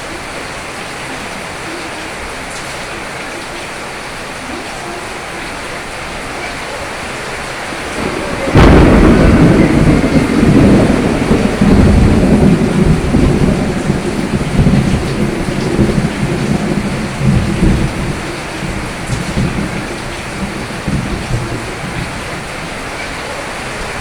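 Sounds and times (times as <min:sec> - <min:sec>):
steady rain: 0:00.0 - 0:24.0
thunder crack and rumble: 0:06.1 - 0:24.0.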